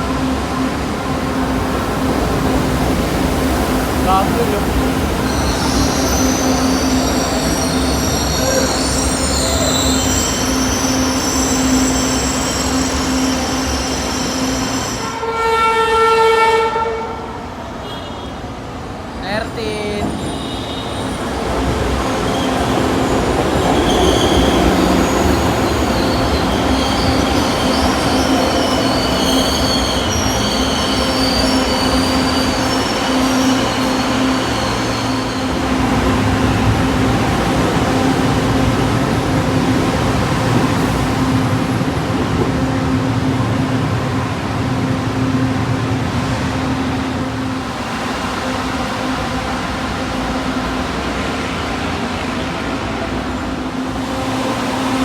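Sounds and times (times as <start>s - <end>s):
train wheels squealing: 5.2s - 15.2s, 20.1s - 36.5s.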